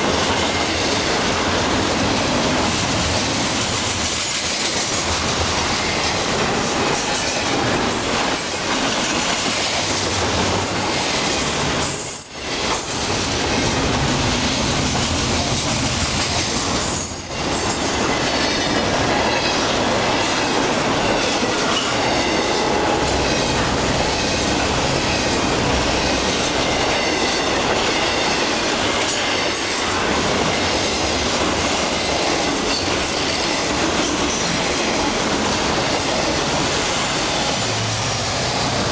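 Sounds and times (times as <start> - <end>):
clickety-clack over rail joints: 0.0 - 38.9
train wheels rumbling on rail: 0.0 - 38.9
high wheel squeal: 11.9 - 12.9.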